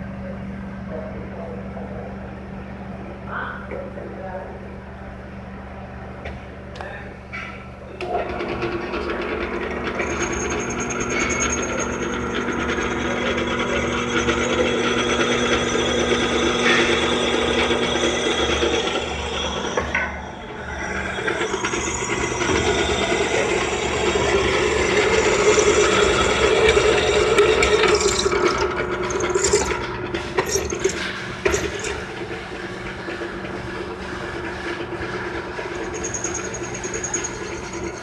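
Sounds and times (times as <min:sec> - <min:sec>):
electric drill cutting steel: 0:09.9 - 0:32.1, 0:35.7 - 0:38.0
sharp clicks and scraping: 0:24.4 - 0:32.1.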